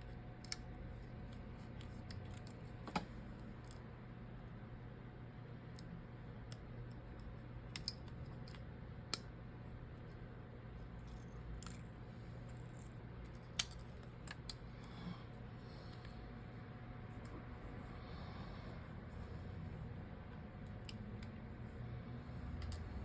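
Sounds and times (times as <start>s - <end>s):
steady low hum: 0.0s - 23.0s
small tools clicking and tapping: 6.5s - 9.3s, 11.0s - 11.9s, 12.5s - 14.8s.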